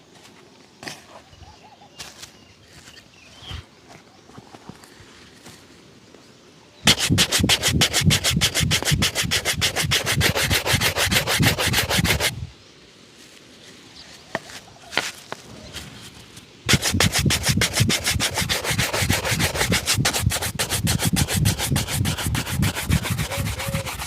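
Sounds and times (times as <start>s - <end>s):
brush strokes on a shoe: 6.9s - 12.5s, 13.1s - 24.0s.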